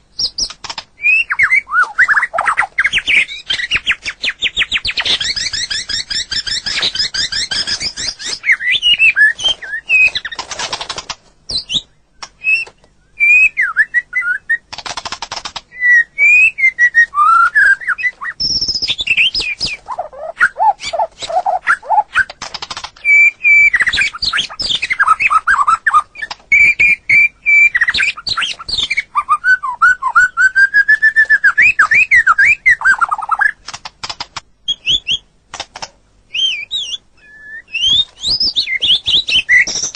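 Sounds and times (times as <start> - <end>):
songbird singing: 0.0 - 10.5, 11.4 - 14.7, 15.4 - 33.6, 34.6 - 35.4, 36.2 - 39.9.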